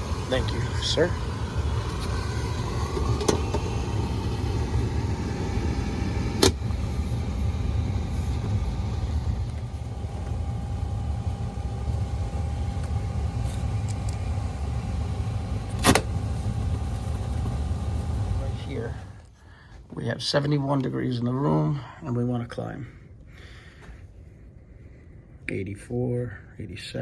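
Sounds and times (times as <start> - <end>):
air handler rumbling: 0.0 - 19.3.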